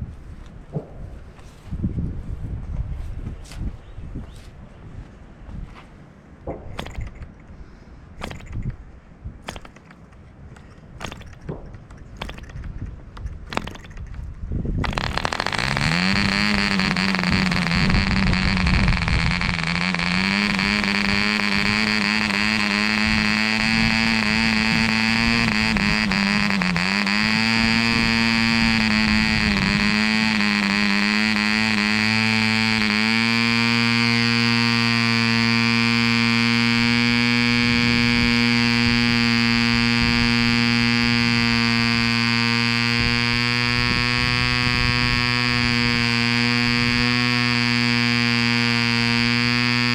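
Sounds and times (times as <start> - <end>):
model engine high buzz: 6.8 - 7.4, 8.2 - 8.8, 9.4 - 49.9.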